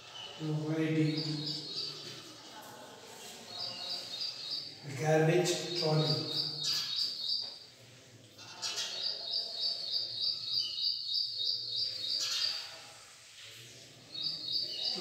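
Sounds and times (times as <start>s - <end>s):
bird chirping high: 0.1s - 2.1s, 5.5s - 7.5s, 8.6s - 12.6s.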